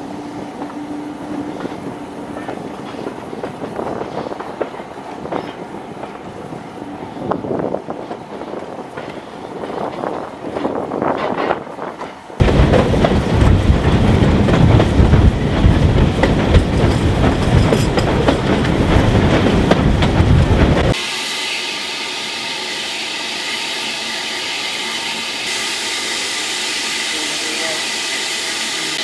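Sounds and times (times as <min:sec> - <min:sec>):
train wheels clattering: 0:08.0 - 0:21.0.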